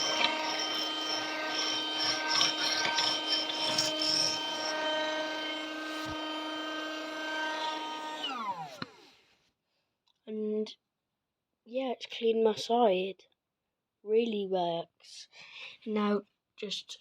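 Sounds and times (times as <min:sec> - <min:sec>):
scratchy rubbing: 0:00.0 - 0:06.5
vacuum cleaner motor whine: 0:00.0 - 0:09.2.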